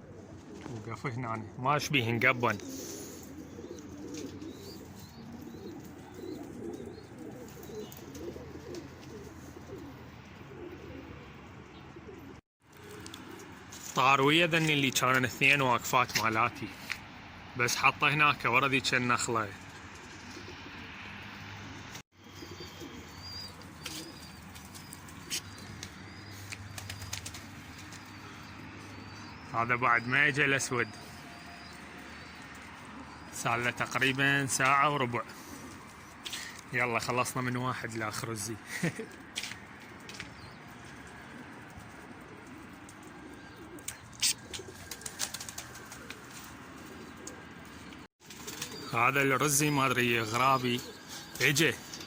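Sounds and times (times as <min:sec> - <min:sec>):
pigeons cooing: 0:00.0 - 0:13.9, 0:18.6 - 0:52.0
pigeon wings flapping: 0:23.8 - 0:28.3, 0:43.8 - 0:47.4, 0:48.2 - 0:48.9.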